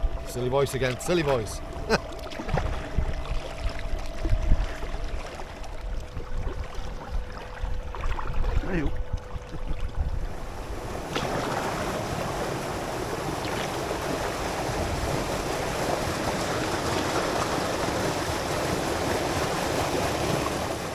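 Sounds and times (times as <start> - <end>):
rushing water: 0.0 - 20.9.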